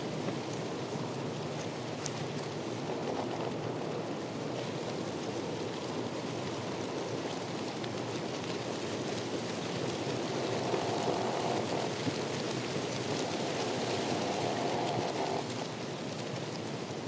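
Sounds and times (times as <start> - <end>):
water rushing hiss: 2.6 - 15.9.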